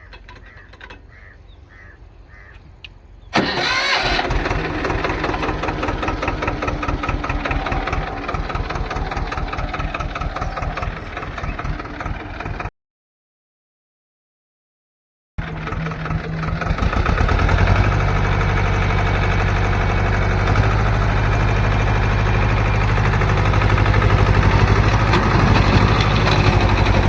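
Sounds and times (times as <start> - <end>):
diesel tractor engine starting: 3.3 - 12.7, 15.4 - 27.0.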